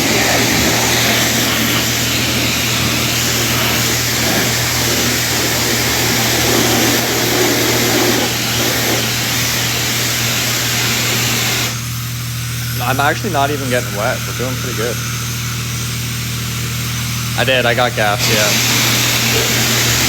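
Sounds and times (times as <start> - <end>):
pressure washer spraying water: 0.0 - 20.0
pump humming: 0.0 - 20.0.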